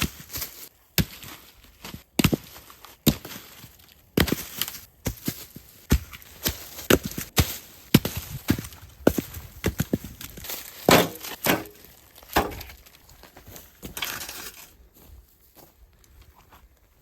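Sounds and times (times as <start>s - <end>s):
firewood knocking and clattering: 10.8s - 12.8s.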